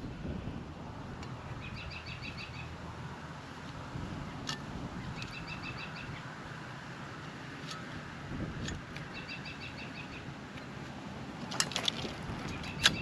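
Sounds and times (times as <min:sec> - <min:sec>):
low outdoor rumble: 0:00.0 - 0:13.0
songbird trilling: 0:01.5 - 0:02.7, 0:05.0 - 0:06.3, 0:09.1 - 0:10.3, 0:12.5 - 0:13.0.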